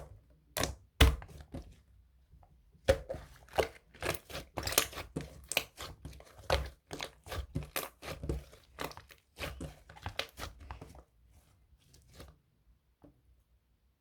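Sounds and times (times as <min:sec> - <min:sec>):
crinkling and crunching: 0:03.3 - 0:11.0.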